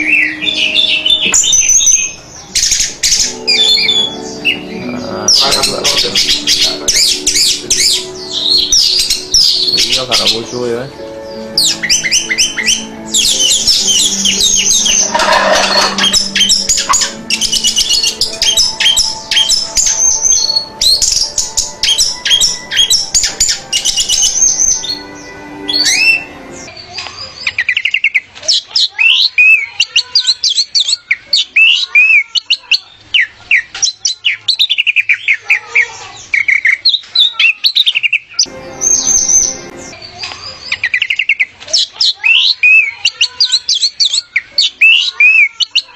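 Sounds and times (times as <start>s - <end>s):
thrush singing: 0.0s - 26.7s, 38.4s - 40.8s.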